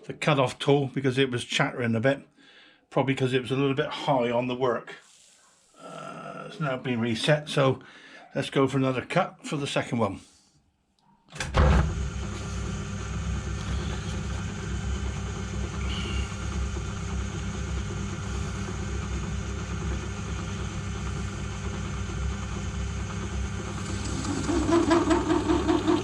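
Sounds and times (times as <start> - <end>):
metal lathe running: 11.7 - 26.0.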